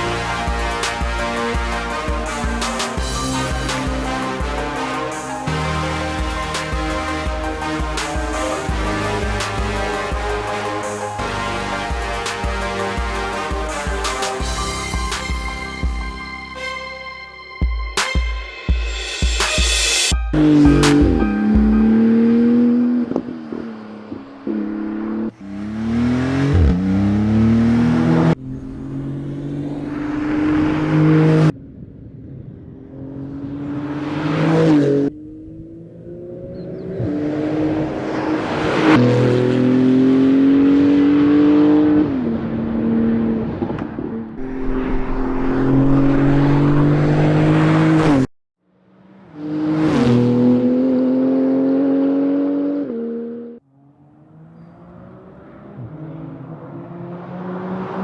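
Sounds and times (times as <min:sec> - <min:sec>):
car engine accelerating hard: 0:20.4 - 0:48.3, 0:49.0 - 0:58.0.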